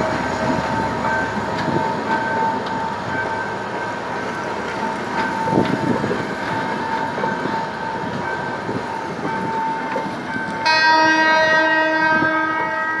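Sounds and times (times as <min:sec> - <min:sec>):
train running on rails: 0:00.0 - 0:13.0
train horn blast: 0:10.6 - 0:13.0.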